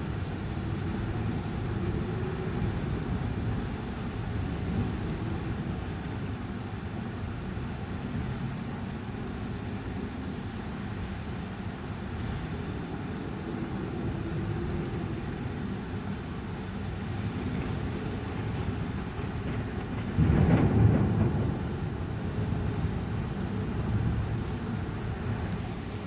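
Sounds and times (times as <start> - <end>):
storm wind: 0.0 - 26.0
heavy rain: 12.8 - 26.0
thunderclap: 19.2 - 24.4.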